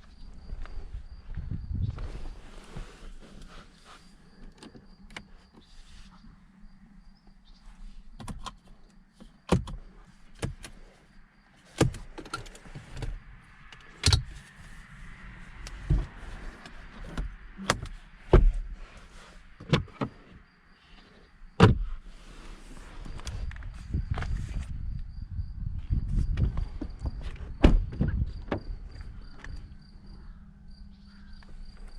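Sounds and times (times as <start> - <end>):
sharp clicks of car controls: 4.3 - 5.7, 8.1 - 10.8, 11.7 - 14.6.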